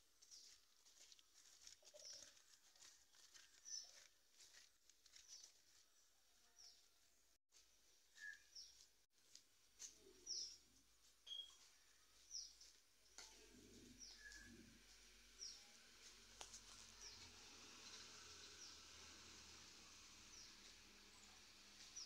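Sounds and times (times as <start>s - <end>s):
faint high bird chirps: 8.1s - 8.8s, 11.2s - 14.8s.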